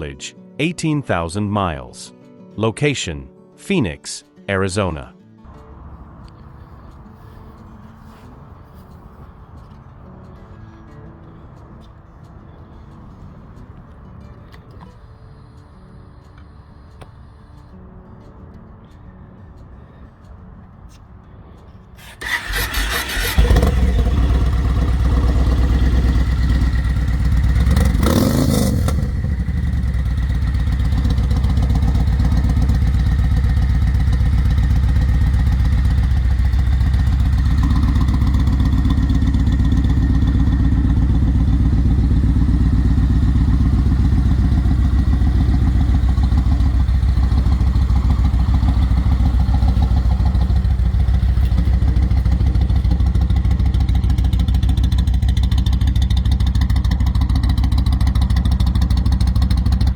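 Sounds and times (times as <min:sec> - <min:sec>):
motorcycle engine starting and idling: 0:22.0 - 0:59.9.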